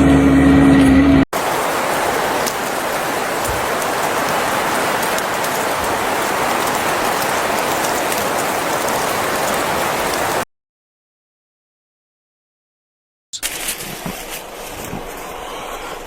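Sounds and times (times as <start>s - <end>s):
heavy rain hissing: 1.3s - 10.4s.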